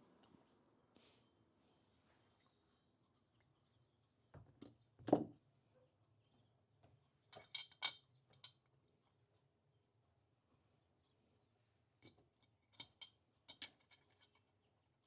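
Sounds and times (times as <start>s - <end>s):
small metal parts clinking: 7.4s - 8.5s, 12.7s - 14.4s.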